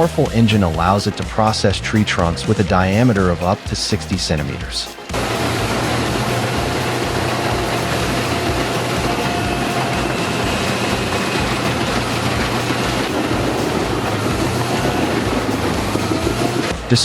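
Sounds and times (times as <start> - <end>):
grinding trunks into chips: 5.1 - 17.0
wood grinder engine drone: 5.1 - 17.0.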